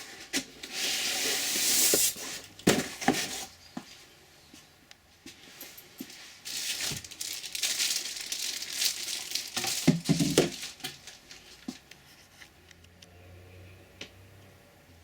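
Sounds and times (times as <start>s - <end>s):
packaging crinkling: 6.4s - 11.8s.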